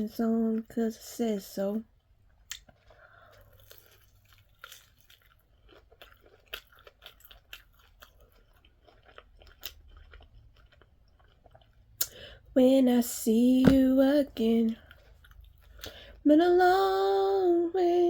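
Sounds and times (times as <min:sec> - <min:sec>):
person chewing food: 0:02.2 - 0:12.5, 0:14.7 - 0:16.2.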